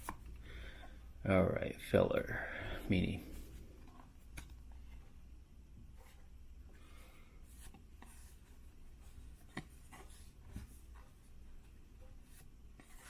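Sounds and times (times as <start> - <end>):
cards rustling and sliding: 0.0 - 0.4.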